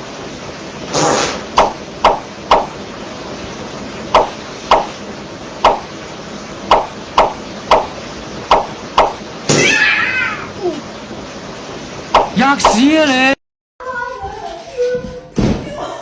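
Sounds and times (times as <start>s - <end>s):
sharp knocks: 1.6s - 2.8s, 4.2s - 5.0s, 5.6s - 5.9s, 6.7s - 9.6s.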